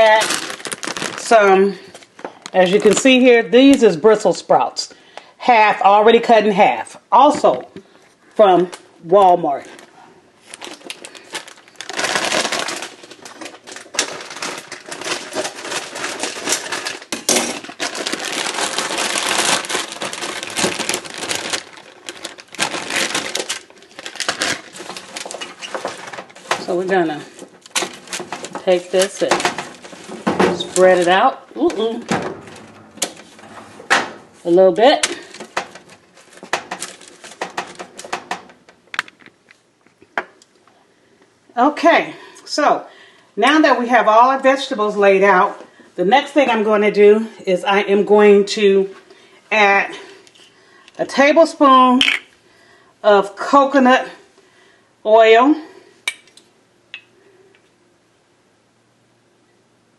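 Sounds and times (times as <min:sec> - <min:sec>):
packaging crinkling: 0:00.0 - 0:03.1, 0:09.8 - 0:40.1.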